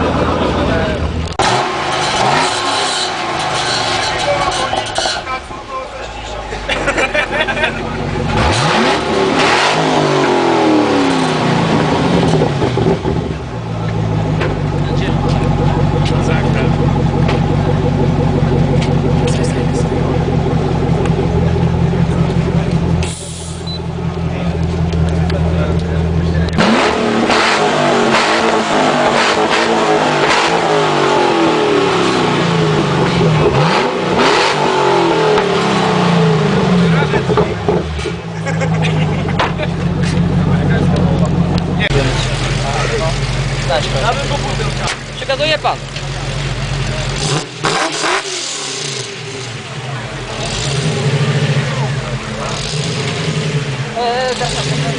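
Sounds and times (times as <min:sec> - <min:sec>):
car engine revving and idling: 0:00.0 - 0:54.9.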